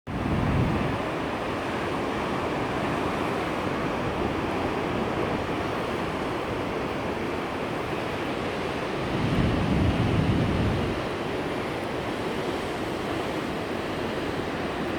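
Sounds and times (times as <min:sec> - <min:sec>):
wind on microphone: 0:00.1 - 0:01.2, 0:08.2 - 0:14.9
ocean waves breaking: 0:00.1 - 0:14.9.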